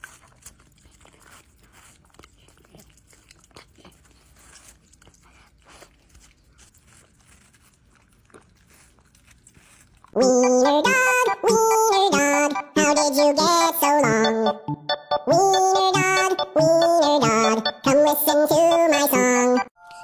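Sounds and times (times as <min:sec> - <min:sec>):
dog chewing: 0:00.0 - 0:14.2.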